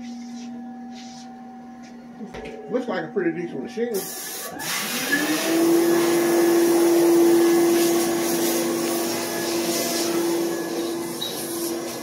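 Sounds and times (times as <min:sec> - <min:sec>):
electric motor whine: 0:04.5 - 0:12.0.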